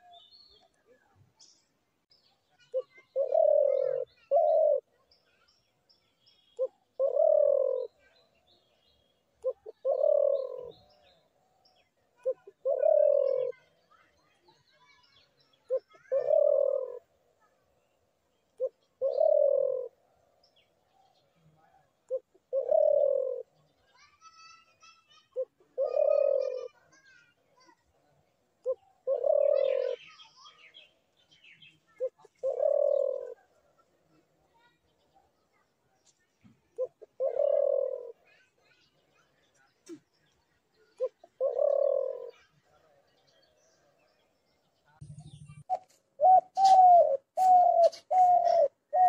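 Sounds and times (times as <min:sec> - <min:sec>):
dove cooing: 0:02.7 - 0:05.0, 0:06.6 - 0:08.2, 0:09.4 - 0:11.1, 0:12.2 - 0:13.8, 0:15.7 - 0:17.2, 0:18.6 - 0:20.2, 0:21.6 - 0:23.6, 0:25.4 - 0:26.8, 0:28.6 - 0:30.2, 0:31.9 - 0:34.2, 0:36.7 - 0:38.4, 0:40.9 - 0:43.0, 0:45.1 - 0:49.0.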